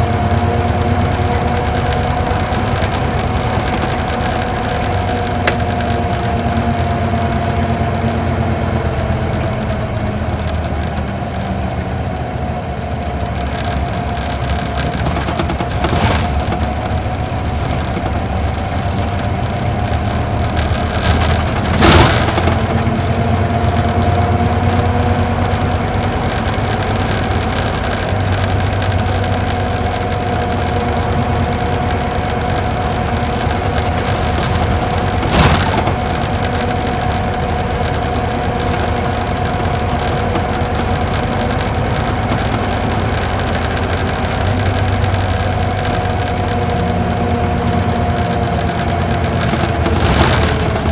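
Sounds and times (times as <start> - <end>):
bus diesel engine drone: 0.0 - 50.9.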